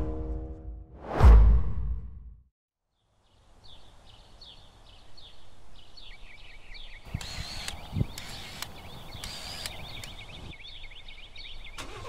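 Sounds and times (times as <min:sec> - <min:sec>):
low steady outdoor background: 0:02.7 - 0:12.0.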